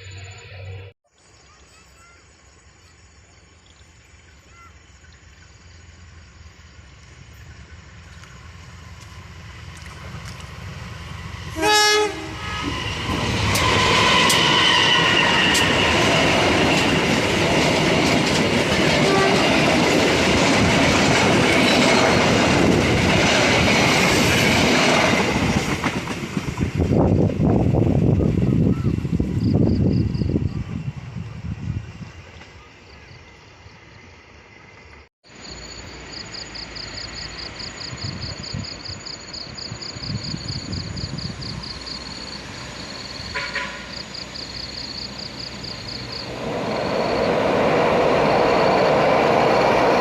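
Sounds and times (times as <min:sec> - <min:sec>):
train rumble and wheel clatter: 0:05.4 - 0:50.0
train horn blast: 0:11.5 - 0:15.8, 0:18.9 - 0:19.7, 0:43.2 - 0:44.1.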